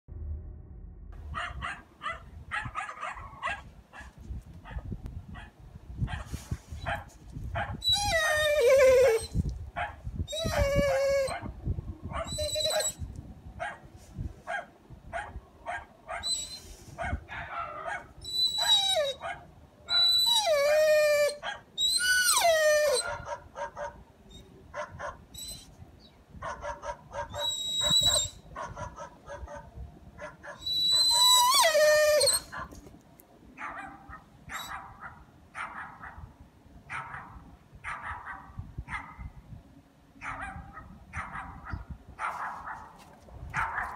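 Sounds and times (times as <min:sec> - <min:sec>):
dog whining and yelping: 0:07.6 - 0:09.5, 0:10.3 - 0:11.5, 0:12.2 - 0:13.1, 0:16.1 - 0:16.7, 0:17.5 - 0:23.4, 0:25.3 - 0:25.7, 0:27.1 - 0:28.7, 0:30.4 - 0:32.8, 0:34.5 - 0:34.8.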